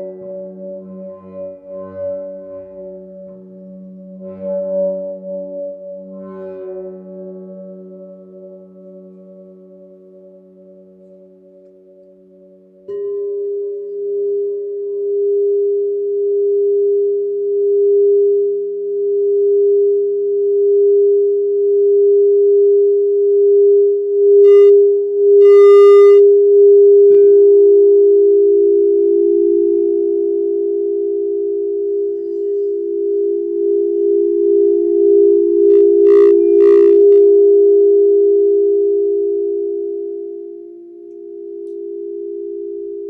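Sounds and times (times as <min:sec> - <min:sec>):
lower singing bowl tone: 0:00.0 - 0:43.0
singing bowl sustained tone: 0:12.0 - 0:25.5, 0:26.2 - 0:43.0.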